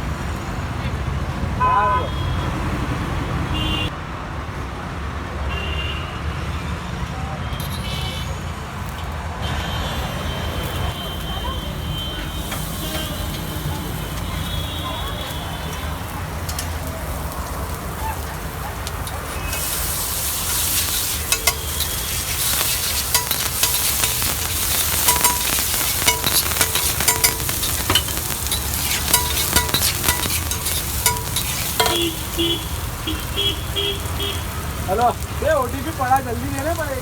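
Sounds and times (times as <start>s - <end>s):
egg sizzling in hot oil: 12.3s - 37.0s
utensil clicking on pan: 18.8s - 32.8s.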